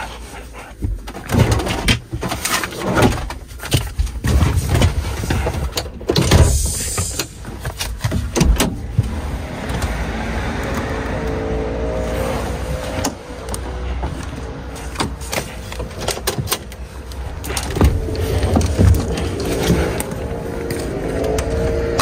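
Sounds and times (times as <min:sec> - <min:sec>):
cab clicks and rattles: 0:00.0 - 0:11.5, 0:12.6 - 0:22.0
diesel truck engine rumbling: 0:05.0 - 0:22.0.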